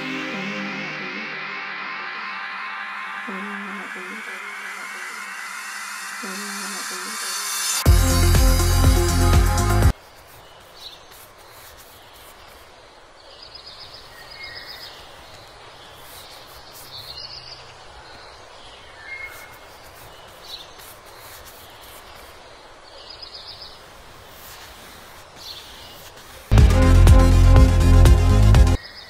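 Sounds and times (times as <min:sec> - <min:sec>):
birds chirping: 0:00.0 - 0:27.0
outdoor background hiss: 0:09.7 - 0:26.5.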